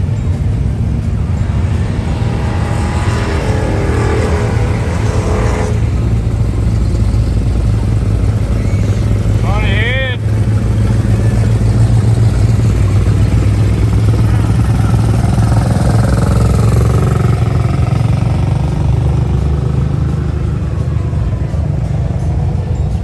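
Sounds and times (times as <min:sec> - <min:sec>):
vehicle engines rumbling: 0:00.0 - 0:23.0
faint tone sliding down: 0:00.1 - 0:09.5.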